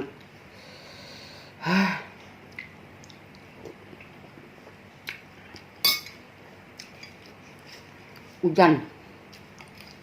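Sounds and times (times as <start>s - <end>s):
spoon clinking against bowl: 5.8s - 6.2s.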